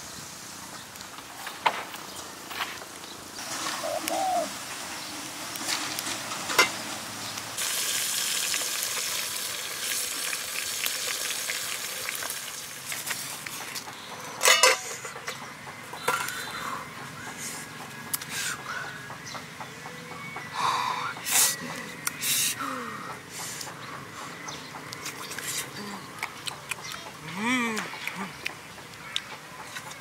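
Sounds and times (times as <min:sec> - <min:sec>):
wood fire crackling: 0:00.6 - 0:13.9
food sizzling in a pot: 0:03.3 - 0:13.4
metal clank: 0:14.4 - 0:15.4.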